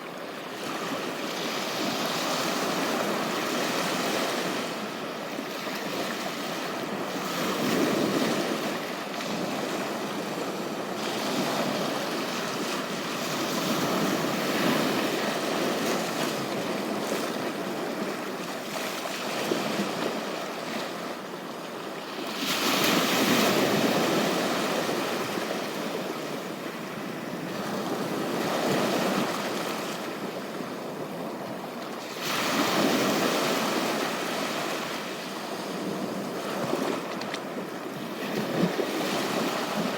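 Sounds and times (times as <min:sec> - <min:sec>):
ocean surf breaking on beach: 0:22.3 - 0:39.9.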